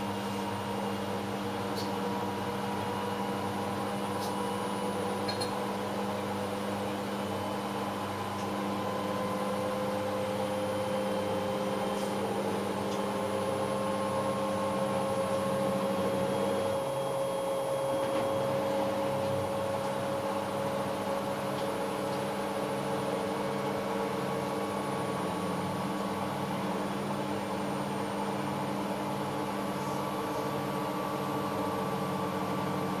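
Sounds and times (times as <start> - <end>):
washing machine motor hum: 0.0 - 33.0.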